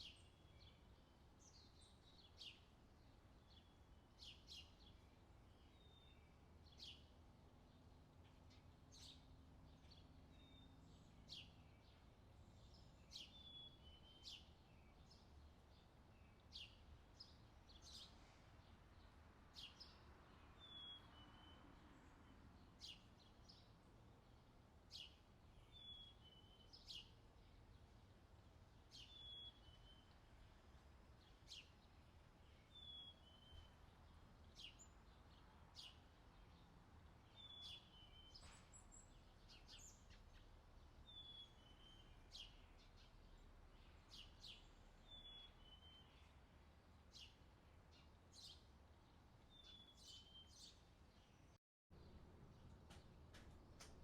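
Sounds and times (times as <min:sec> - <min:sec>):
bird chirping: 0:19.6 - 0:23.8, 0:24.9 - 0:27.8, 0:28.9 - 0:30.3, 0:31.2 - 0:46.5, 0:47.1 - 0:54.0.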